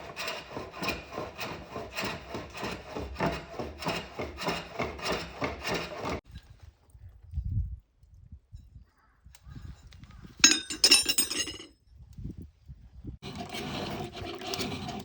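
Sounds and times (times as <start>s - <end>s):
cutting tool rasping strokes: 0.0s - 6.2s.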